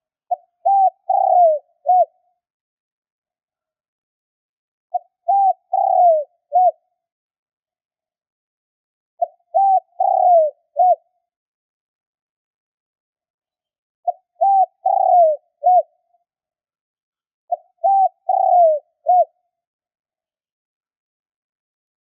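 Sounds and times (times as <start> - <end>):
dove cooing: 0.3 - 2.2, 4.9 - 6.8, 9.2 - 11.1, 14.1 - 16.0, 17.5 - 19.4.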